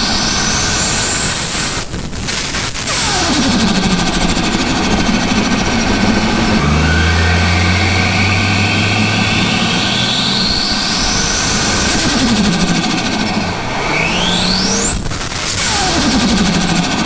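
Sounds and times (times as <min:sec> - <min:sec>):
turbocharged engine running loud: 0:00.0 - 0:17.0
turbo whistle rising in pitch: 0:00.3 - 0:12.4.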